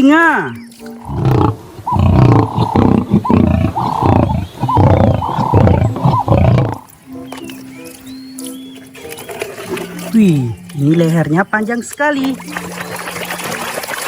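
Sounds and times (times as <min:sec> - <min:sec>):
lion roaring: 0:00.5 - 0:06.9.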